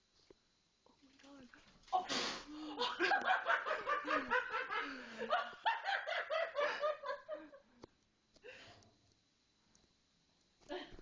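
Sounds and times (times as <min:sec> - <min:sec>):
person laughing hard: 0:02.6 - 0:07.6.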